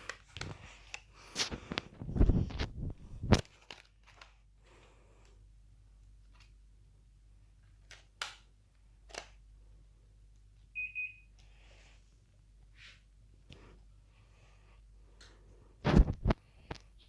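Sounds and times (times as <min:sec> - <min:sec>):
air conditioner high beeps: 0:10.7 - 0:11.4.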